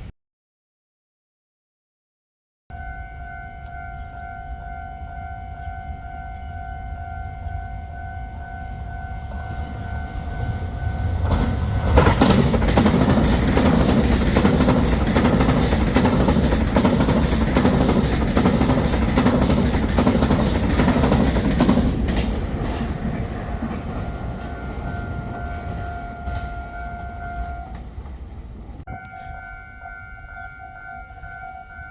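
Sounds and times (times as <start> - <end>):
train wheels clattering: 8.6 - 31.9
faint high tone: 24.1 - 27.8, 28.9 - 31.9.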